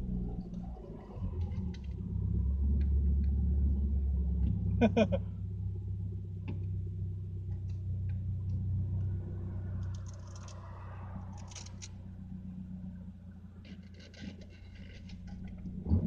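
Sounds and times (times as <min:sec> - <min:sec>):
low engine hum: 0:00.0 - 0:16.0
road noise: 0:00.0 - 0:16.0
light clicks and rattles: 0:09.8 - 0:10.7, 0:11.3 - 0:12.0, 0:13.6 - 0:15.7.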